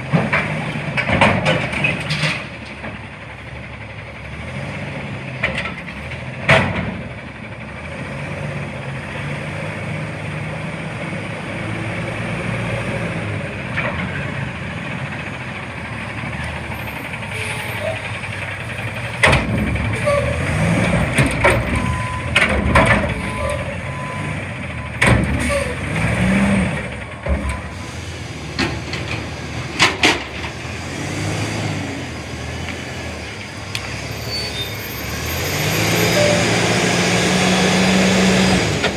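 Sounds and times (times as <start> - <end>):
garbage truck engine drone: 0.0 - 38.9
metal clanks and bangs: 13.6 - 30.9.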